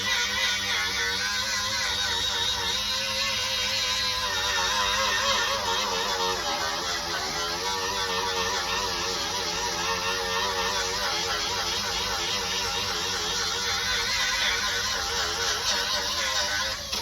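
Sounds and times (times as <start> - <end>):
abrasive power tool whining on metal: 0.0 - 17.0.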